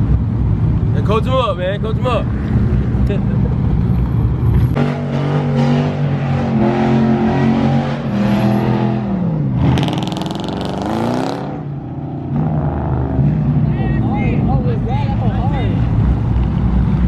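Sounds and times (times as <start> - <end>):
car engine revving hard: 4.8 - 11.7.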